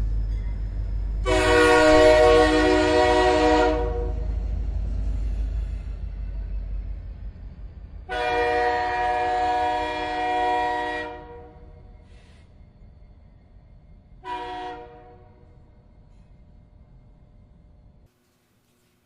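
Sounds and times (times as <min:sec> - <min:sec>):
train low rumble: 0:00.0 - 0:19.0
train horn blasts: 0:01.2 - 0:04.4, 0:08.1 - 0:11.8, 0:14.2 - 0:15.6.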